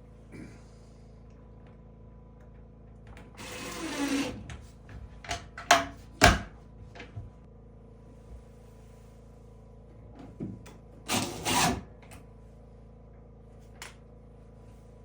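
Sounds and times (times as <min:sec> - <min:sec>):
small power tool running: 0:03.3 - 0:04.4, 0:11.1 - 0:11.9.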